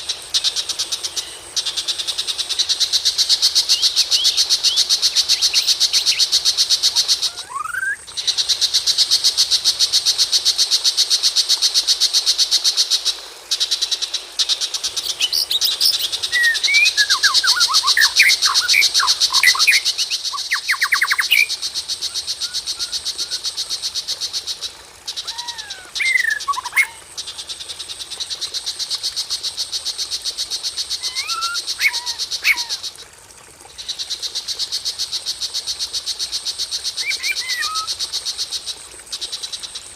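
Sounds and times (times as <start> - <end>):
bird whistling sweeping phrases: 7.4 - 8.0.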